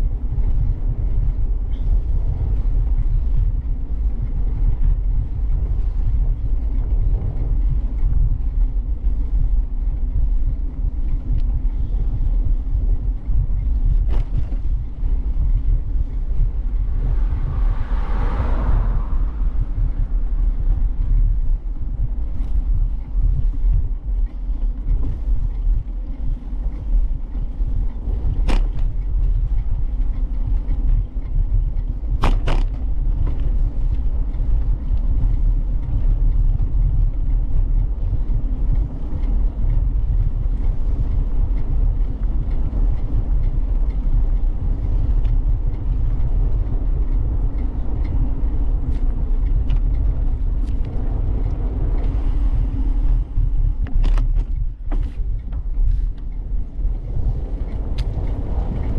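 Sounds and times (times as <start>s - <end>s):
road noise: 0.0s - 58.9s
wind noise on microphone: 0.0s - 58.9s
rushing sound: 16.6s - 21.0s.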